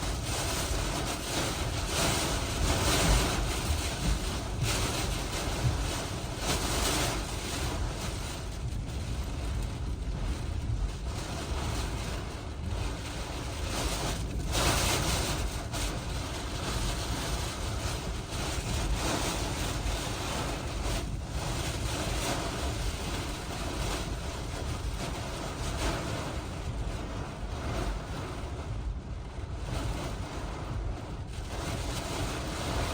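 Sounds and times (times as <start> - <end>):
driving rain: 0.0 - 32.9
wind buffeting microphone: 0.0 - 32.9.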